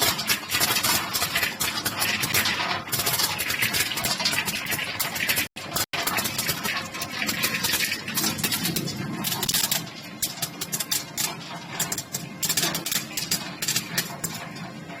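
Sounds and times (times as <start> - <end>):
machine clattering clicks: 0.0 - 15.0.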